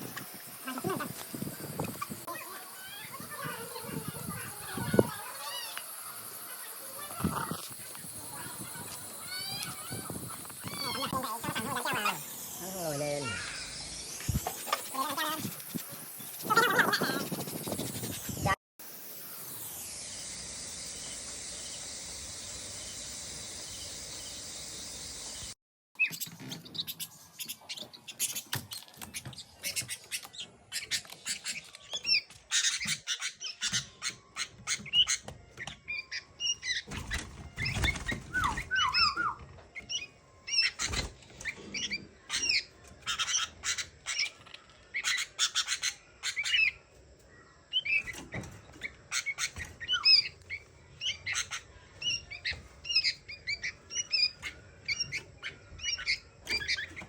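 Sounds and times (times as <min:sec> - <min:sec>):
birds chirping and whistling: 0:00.0 - 0:18.5, 0:20.1 - 0:57.0
steady hiss: 0:00.0 - 0:25.6.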